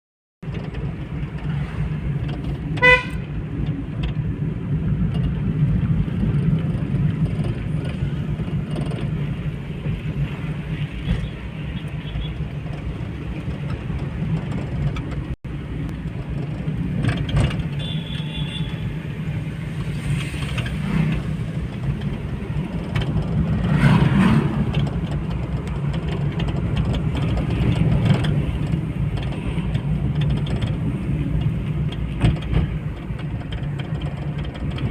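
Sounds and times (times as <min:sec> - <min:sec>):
road traffic rumble: 0:00.4 - 0:34.9
vehicle horn toot: 0:02.8 - 0:03.3, 0:17.8 - 0:18.9.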